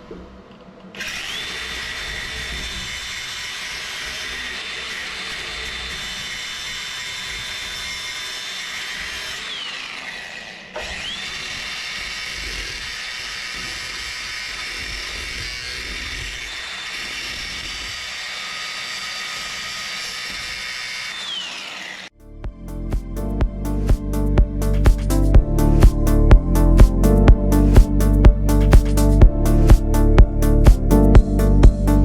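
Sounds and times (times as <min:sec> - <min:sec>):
power tool motor whining: 0:01.0 - 0:22.2
music with a beat: 0:22.5 - 0:32.0.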